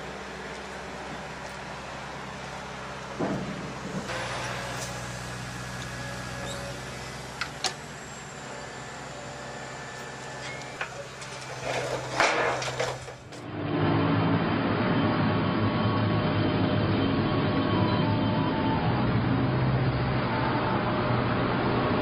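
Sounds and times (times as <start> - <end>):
diesel engine running: 0.0 - 22.0
metal clanks and scraping: 10.4 - 13.5.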